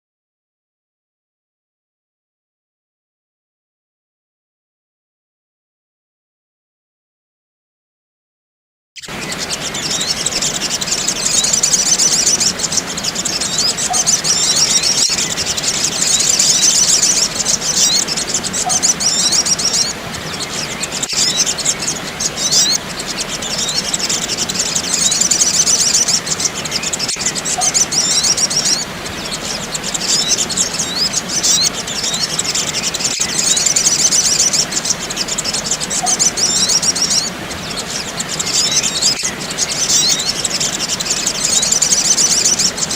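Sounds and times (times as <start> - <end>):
chorus of high-pitched bird chirps: 9.0 - 42.9.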